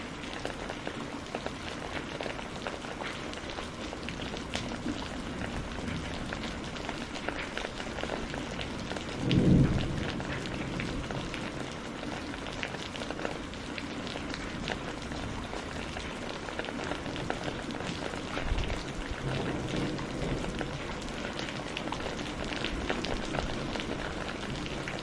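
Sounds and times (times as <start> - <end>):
rain falling: 0.0 - 25.0
raindrops ticking: 0.0 - 25.0
low rumble of thunder: 4.1 - 12.6, 16.9 - 25.0.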